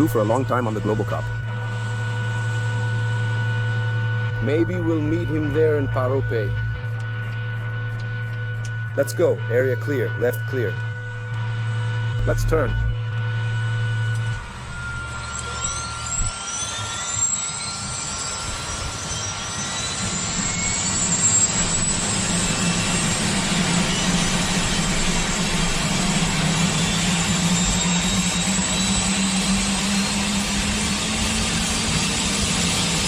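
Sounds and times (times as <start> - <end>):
helicopter engine starting: 10.2 - 33.0.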